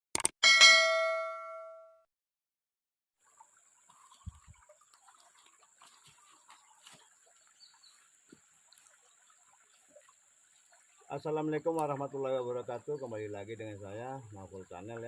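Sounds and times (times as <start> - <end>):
light ticks: 11.7 - 11.9.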